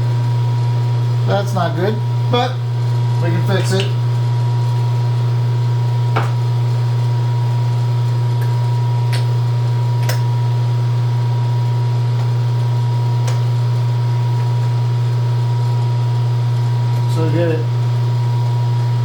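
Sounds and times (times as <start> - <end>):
phase converter humming: 0.0 - 19.0.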